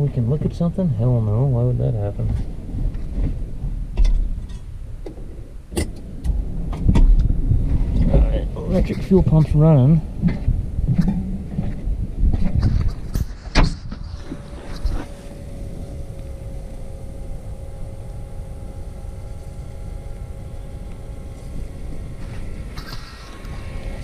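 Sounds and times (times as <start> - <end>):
electric fuel pump humming: 13.4 - 24.0.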